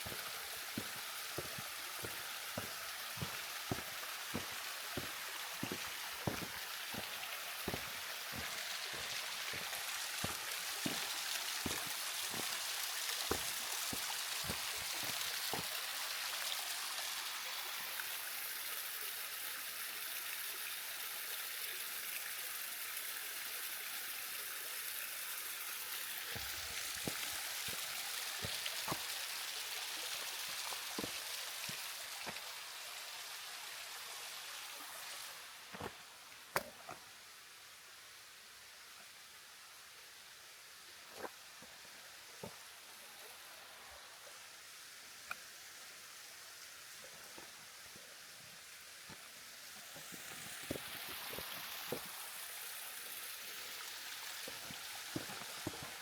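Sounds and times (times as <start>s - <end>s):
falling water rushing: 0.0s - 18.8s, 25.4s - 37.0s, 49.1s - 56.0s.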